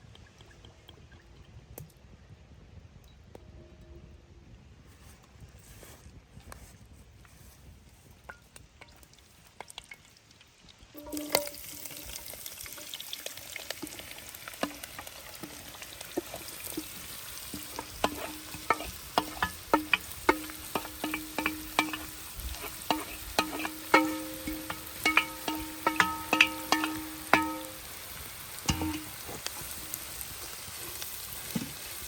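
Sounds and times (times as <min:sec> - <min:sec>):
sizzling with sharp pops: 0:07.4 - 0:32.0
low tone: 0:11.0 - 0:12.0.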